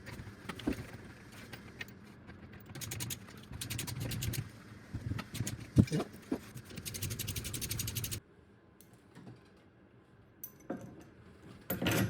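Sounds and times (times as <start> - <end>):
ratchet wrench clicking: 2.8 - 4.4.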